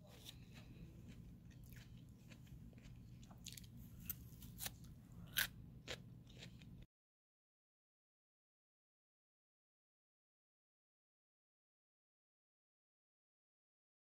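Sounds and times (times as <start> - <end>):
person crunching cucumber: 0.0 - 6.8.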